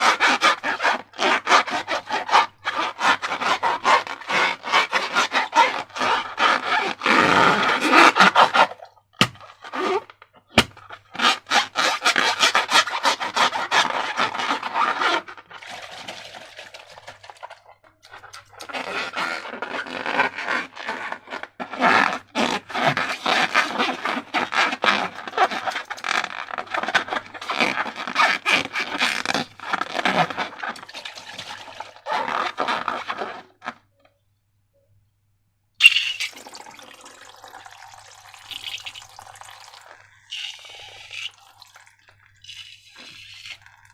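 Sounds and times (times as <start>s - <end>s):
slime squeezed by hand: 35.8s - 36.6s, 38.4s - 43.9s.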